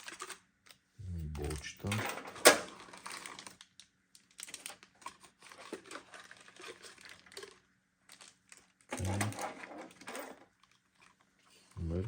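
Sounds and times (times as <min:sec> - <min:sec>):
packaging rustling and crinkling: 0:02.9 - 0:09.2.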